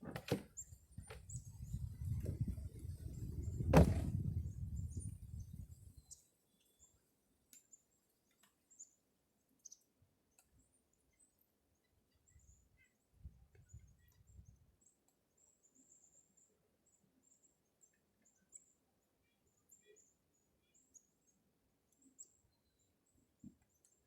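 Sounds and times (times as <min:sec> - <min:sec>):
low rumbling handling noise: 0:01.0 - 0:04.6
faint high bird chirps: 0:09.6 - 0:24.0.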